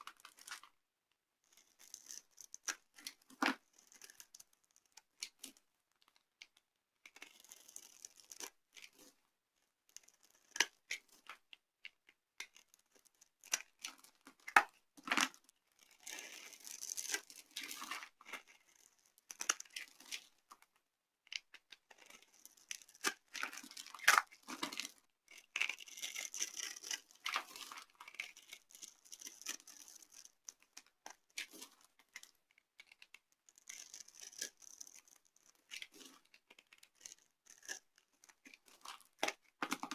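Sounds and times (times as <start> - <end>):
dry soap crunching by hand: 21.5 - 31.2.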